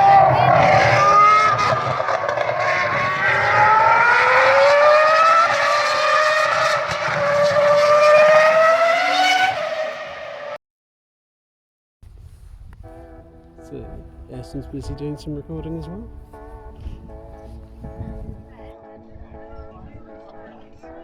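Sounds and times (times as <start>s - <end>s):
racing car engines accelerating: 0.0s - 10.6s.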